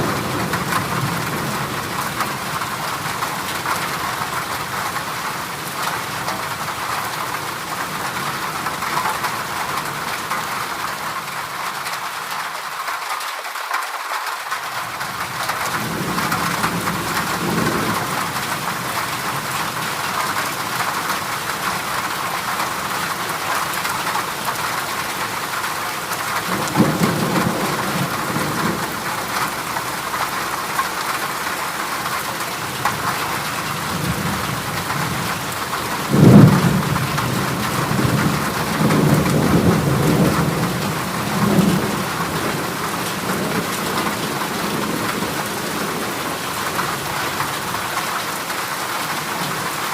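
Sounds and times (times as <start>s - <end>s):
heavy rain on metal roof: 0.0s - 49.9s
thunder rumbling: 26.4s - 30.3s, 32.0s - 47.8s
loud thunder crack: 26.5s - 29.3s, 36.0s - 46.0s.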